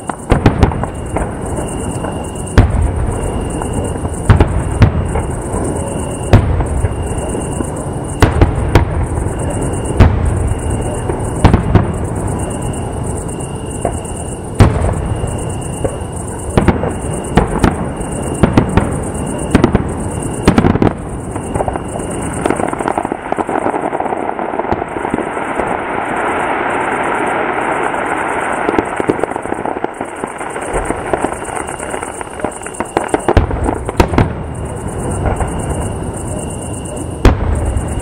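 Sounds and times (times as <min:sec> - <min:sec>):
crackling of crackle stars: 0:19.2 - 0:38.0.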